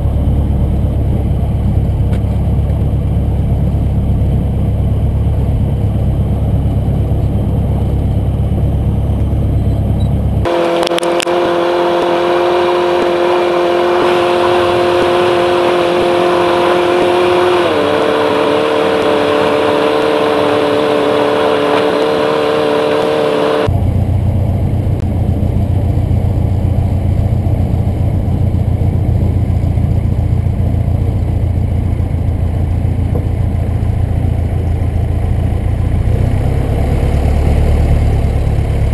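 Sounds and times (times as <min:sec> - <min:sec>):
higher steady hum: 0:00.0 - 0:36.0
light aircraft engine droning: 0:00.0 - 0:38.9.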